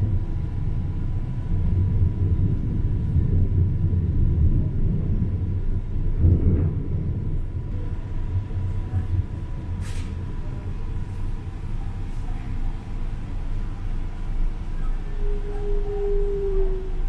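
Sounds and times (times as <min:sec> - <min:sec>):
train wheels rumbling on track: 0:00.0 - 0:17.0
faint high tone: 0:14.7 - 0:17.0.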